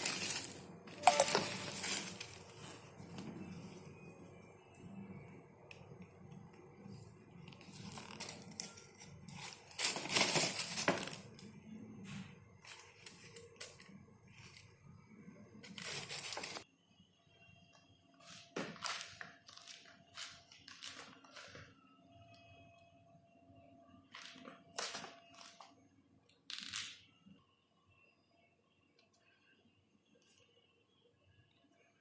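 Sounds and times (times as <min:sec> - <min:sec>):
packaging crinkling and tearing: 0:15.7 - 0:16.6.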